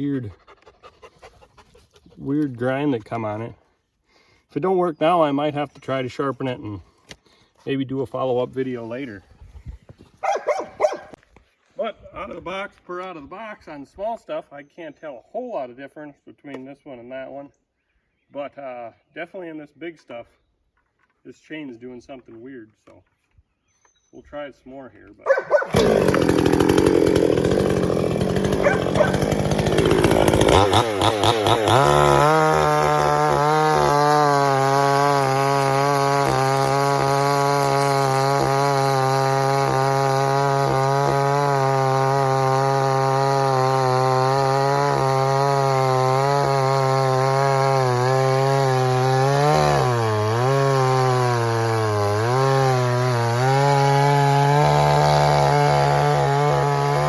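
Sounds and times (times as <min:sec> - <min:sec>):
chainsaw cutting into a log: 0:10.2 - 0:11.2, 0:25.3 - 0:57.0.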